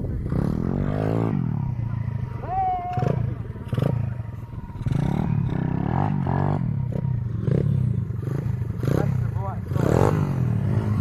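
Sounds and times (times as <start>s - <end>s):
small motorbike engine revving: 2.9s - 11.0s.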